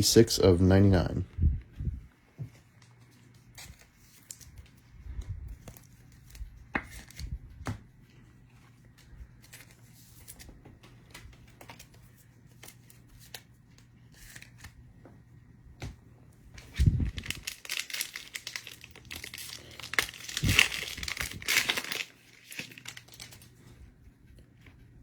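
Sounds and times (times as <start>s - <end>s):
small crackles of cards: 2.7s - 14.8s, 16.6s - 23.8s
wrapper torn and crinkled: 16.6s - 23.5s.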